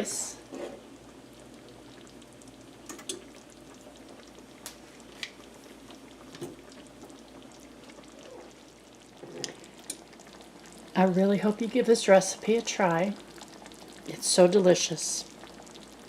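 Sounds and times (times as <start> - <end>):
gravy bubbling in a pan: 0.0 - 16.0.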